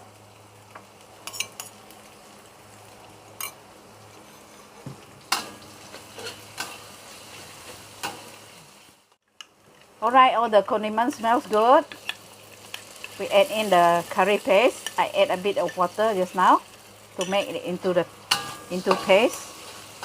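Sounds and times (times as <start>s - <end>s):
aromatics sizzling in a pan: 0.0s - 20.0s
utensil scraping a pan: 4.1s - 8.2s.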